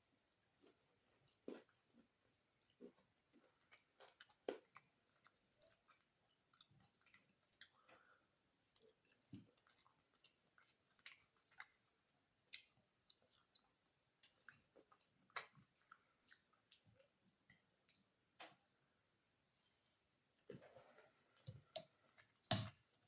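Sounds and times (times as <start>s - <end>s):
person chewing food: 0.6s - 18.2s.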